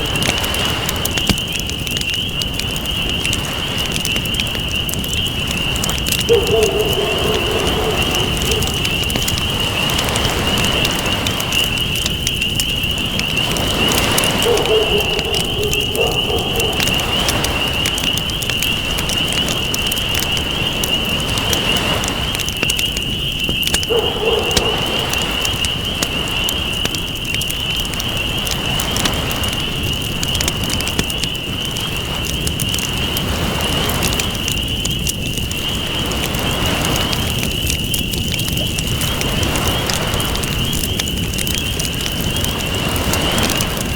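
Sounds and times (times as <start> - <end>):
campfire crackling: 0.0 - 43.9
ocean waves washing: 5.4 - 19.7, 20.3 - 26.9.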